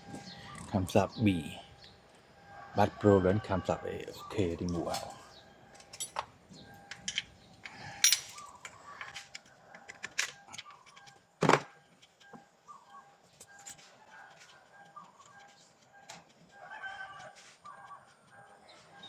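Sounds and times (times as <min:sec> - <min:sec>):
hand tools clicking and clinking: 0:04.7 - 0:06.3, 0:06.9 - 0:11.2.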